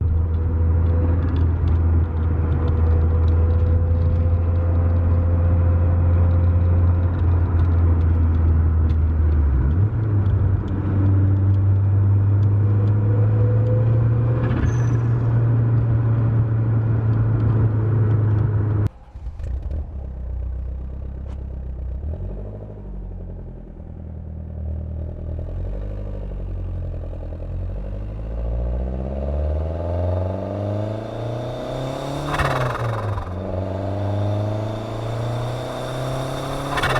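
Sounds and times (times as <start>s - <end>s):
car engine running: 29.8s - 36.9s.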